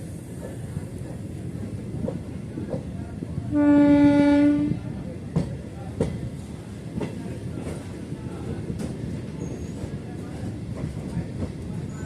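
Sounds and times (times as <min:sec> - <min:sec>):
train running rumble: 0:00.0 - 0:12.0
train horn blast: 0:03.5 - 0:04.8.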